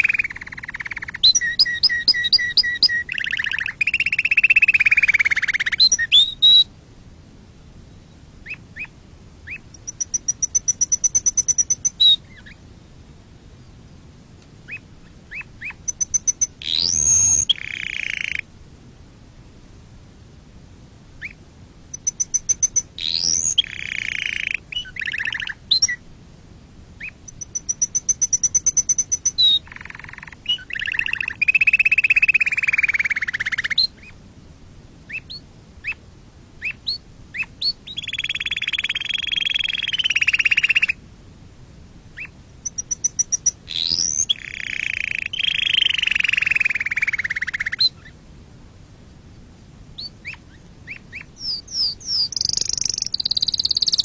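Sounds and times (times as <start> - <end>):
canary singing trills: 0.0 - 6.7, 8.0 - 12.6, 14.7 - 18.5, 21.2 - 26.0, 27.0 - 34.2, 35.1 - 36.0, 36.6 - 41.0, 42.2 - 48.2, 50.0 - 54.0.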